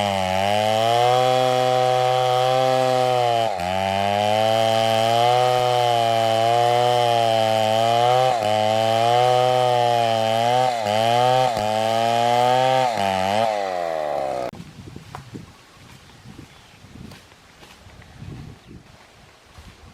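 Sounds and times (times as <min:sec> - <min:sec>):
chainsaw cutting into tree: 0:00.0 - 0:14.6.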